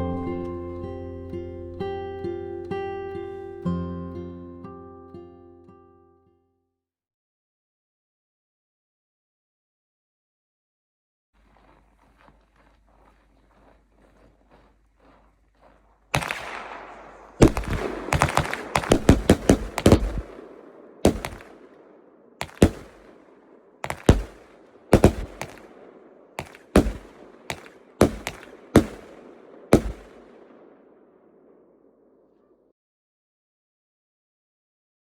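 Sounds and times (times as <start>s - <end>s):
fireworks banging: 16.2s - 31.6s.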